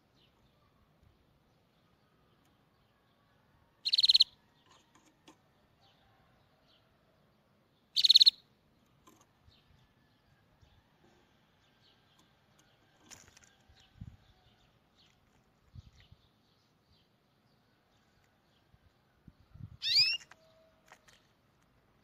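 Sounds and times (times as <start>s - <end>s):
bird chirping trill: 3.8s - 5.1s, 7.8s - 9.8s, 19.6s - 20.7s.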